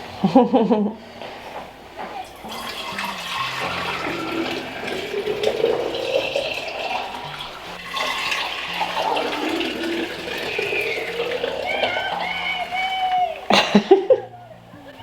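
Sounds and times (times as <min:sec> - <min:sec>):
milk splashing into a pail: 0:02.4 - 0:12.7.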